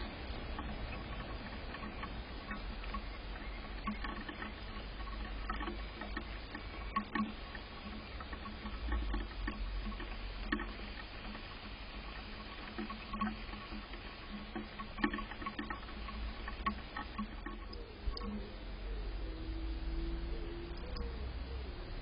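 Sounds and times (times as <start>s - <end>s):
light tapping and clicking: 0.0s - 18.4s
steady low rumble: 15.9s - 22.0s.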